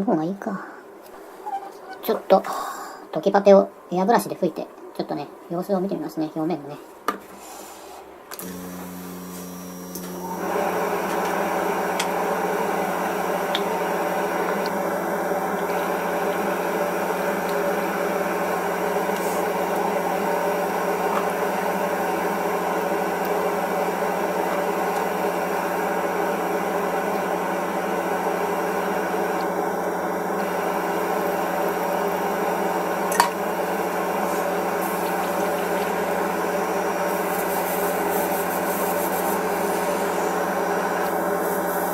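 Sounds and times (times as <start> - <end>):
airbrush compressor motor humming: 8.4 - 41.9.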